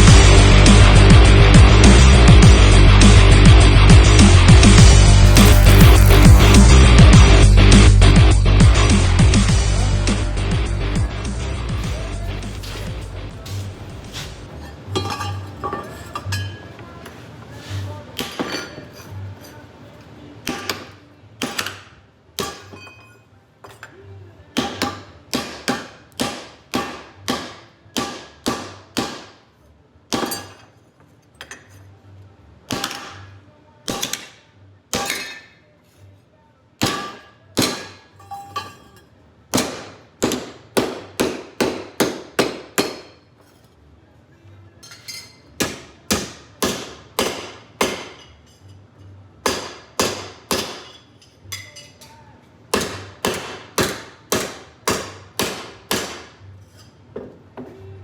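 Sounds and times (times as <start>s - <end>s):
hammer striking metal: 36.8s - 38.7s, 39.6s - 43.2s, 45.6s - 48.4s, 49.4s - 51.0s, 52.8s - 56.3s.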